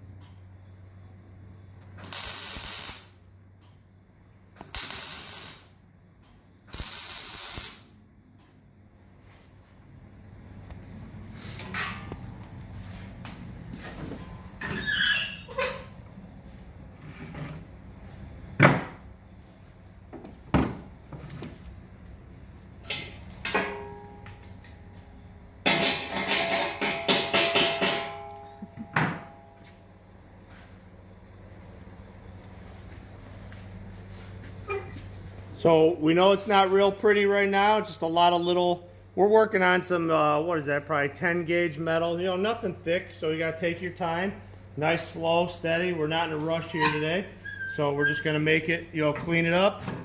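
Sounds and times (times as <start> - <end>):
steady low hum: 0.0 - 14.8, 15.4 - 50.0
welder hissing crackle: 2.0 - 3.2, 4.6 - 5.8, 6.7 - 8.0
metal knocking and clanking: 25.6 - 29.5.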